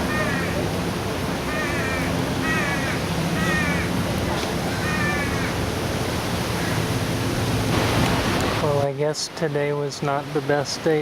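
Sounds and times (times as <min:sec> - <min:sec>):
parrots squawking: 0:00.0 - 0:00.6, 0:01.4 - 0:04.0, 0:04.7 - 0:05.6
steady background hiss: 0:00.0 - 0:11.0.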